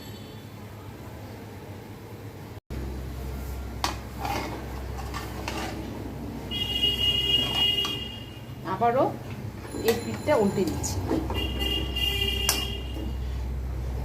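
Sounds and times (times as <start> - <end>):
metal spatula scraping a pan: 3.8 - 6.0, 7.2 - 8.2.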